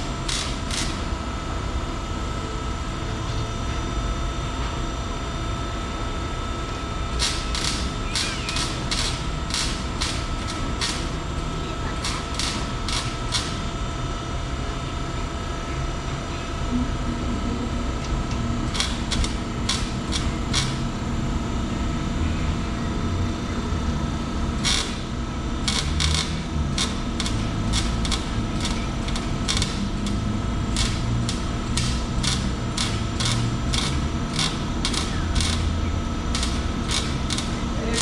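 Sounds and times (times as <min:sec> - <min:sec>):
sharp clicks: 0:00.0 - 0:01.1, 0:07.2 - 0:13.7, 0:18.7 - 0:20.8, 0:24.6 - 0:38.0
low mechanical hum: 0:00.0 - 0:38.0.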